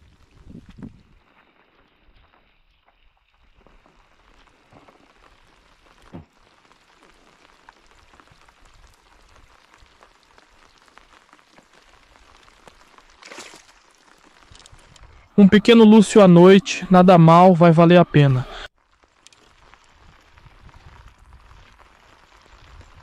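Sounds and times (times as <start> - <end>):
light rain pattering: 0.0 - 23.0.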